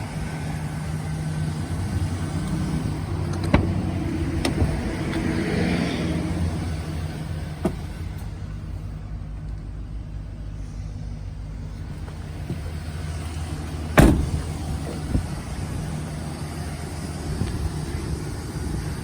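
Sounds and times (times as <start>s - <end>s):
van engine idling: 0.0s - 19.0s
loud thump: 13.9s - 15.3s.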